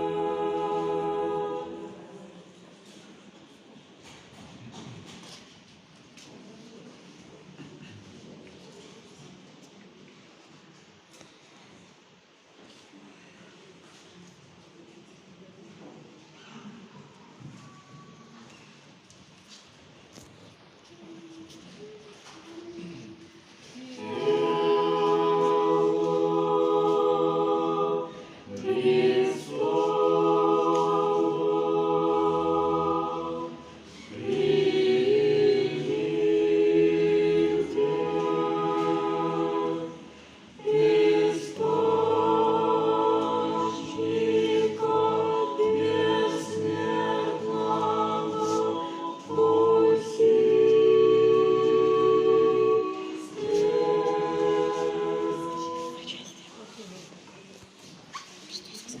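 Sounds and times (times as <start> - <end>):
choir singing sustained chords: 0.0 - 2.6, 24.0 - 56.4.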